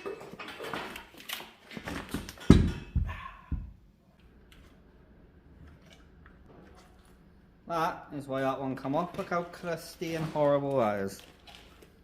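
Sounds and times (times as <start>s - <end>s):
knocks and thuds: 2.2s - 3.8s.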